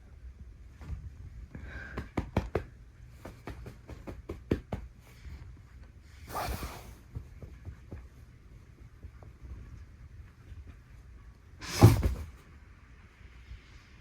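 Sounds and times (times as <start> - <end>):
kitten thumping on bedding: 1.9 - 5.2, 11.6 - 12.5
rustling: 3.1 - 11.0.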